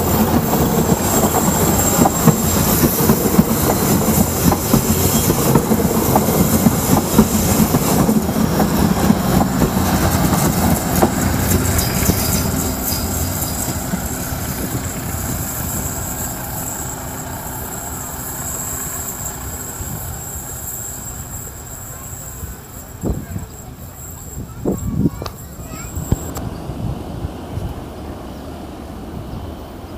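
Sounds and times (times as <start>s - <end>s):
passenger train on rails: 0.0s - 29.9s.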